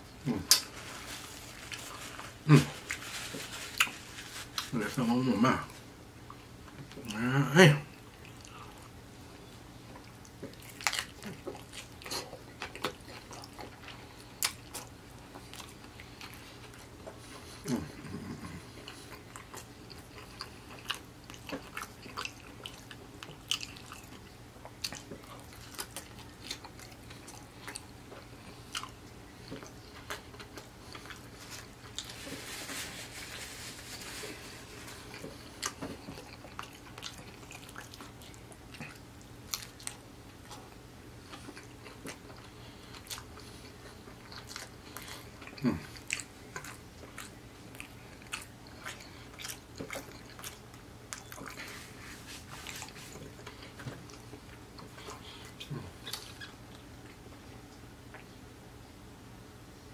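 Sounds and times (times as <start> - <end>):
rustling noise: 0.6 - 4.9, 31.3 - 35.3, 51.6 - 53.4
person chewing with wet smacks: 7.9 - 9.0, 9.8 - 32.5, 34.0 - 58.4.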